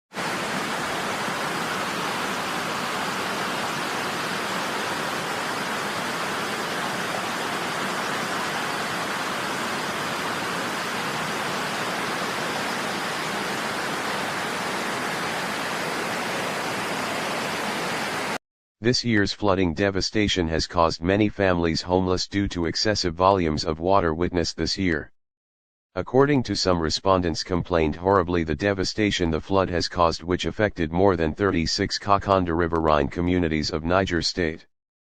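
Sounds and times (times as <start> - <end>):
steady rushing noise: 0.1 - 18.4.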